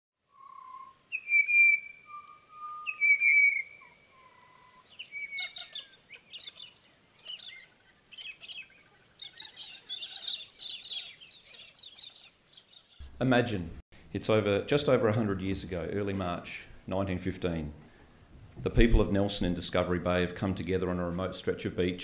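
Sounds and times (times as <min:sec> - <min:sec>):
whistled bird notes: 0:00.2 - 0:13.0
bird chirps: 0:00.2 - 0:13.1.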